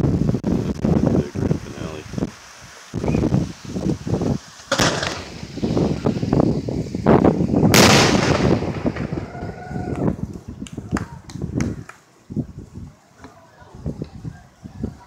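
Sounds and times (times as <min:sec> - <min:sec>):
loud firework reports: 0:00.0 - 0:10.3
fireworks bangs and crackles: 0:00.0 - 0:12.0.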